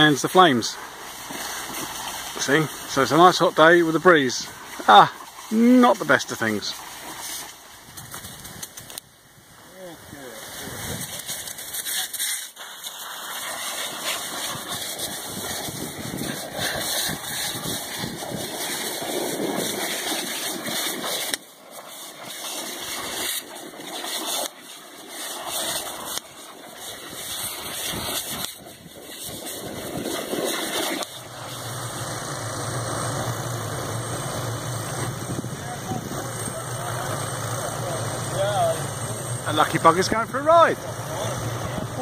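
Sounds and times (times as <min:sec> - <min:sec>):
engine running: 0:00.0 - 0:09.0, 0:29.3 - 0:42.0
dense rushing noise: 0:27.2 - 0:42.0
low engine hum: 0:31.1 - 0:42.0.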